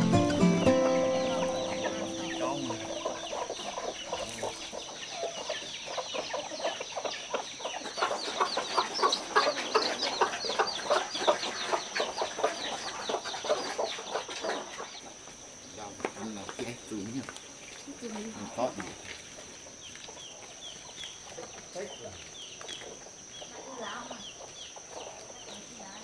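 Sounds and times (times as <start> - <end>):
background music: 0.0 - 3.9
chickens clucking and cheeping: 0.0 - 15.6, 19.3 - 26.0.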